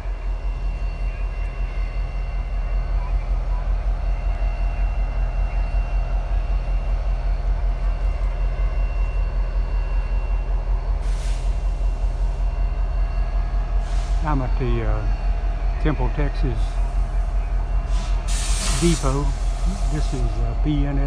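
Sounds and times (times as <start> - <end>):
locomotive idling: 9.2 - 21.0
air hissing: 16.7 - 20.5.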